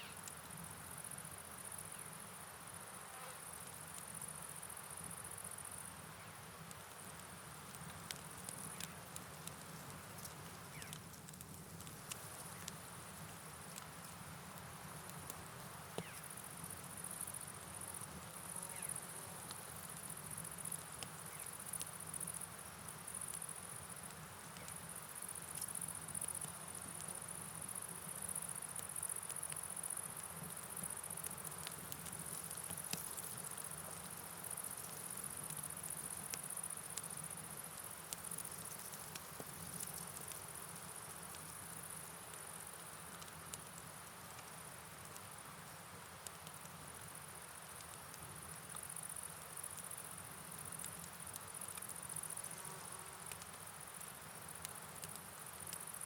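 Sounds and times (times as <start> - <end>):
rain: 0.0 - 56.0
light ticks: 6.6 - 14.2, 15.0 - 16.3, 18.7 - 22.4, 23.1 - 37.3, 38.1 - 45.4, 46.2 - 46.8, 47.8 - 52.4, 53.3 - 56.0.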